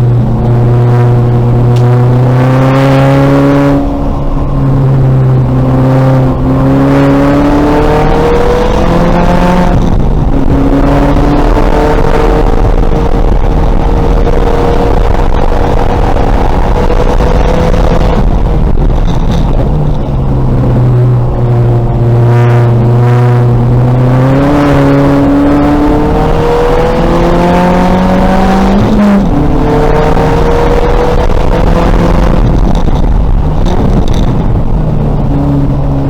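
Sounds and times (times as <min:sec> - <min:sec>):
race car engine revving: 0:00.0 - 0:36.0
wind and road noise: 0:00.0 - 0:36.0.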